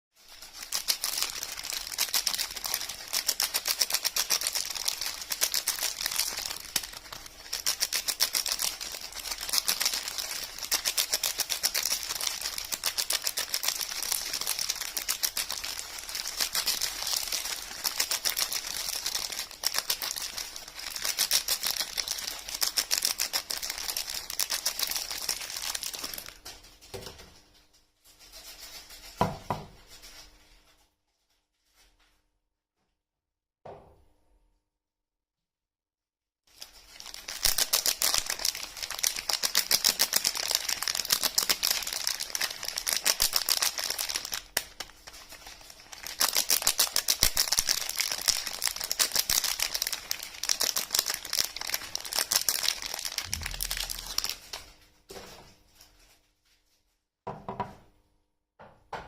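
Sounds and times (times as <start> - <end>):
packaging crackling: 0.2 - 26.5, 36.5 - 54.8.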